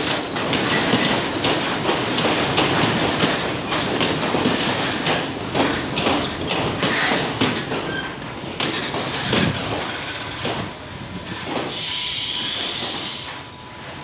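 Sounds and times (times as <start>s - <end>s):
wheels clacking over rail joints: 0.0s - 11.9s
railway coaches rolling past: 0.0s - 14.0s.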